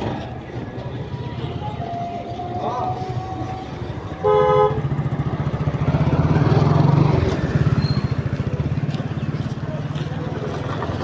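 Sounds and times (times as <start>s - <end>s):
vehicle engine running: 3.9s - 11.0s.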